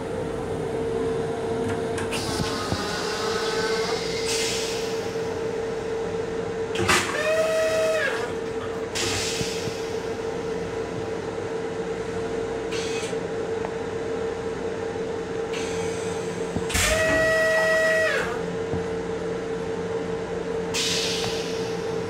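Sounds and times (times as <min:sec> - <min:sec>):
electric railcar hum: 0:00.0 - 0:22.0
air hiss bursts: 0:20.8 - 0:21.8.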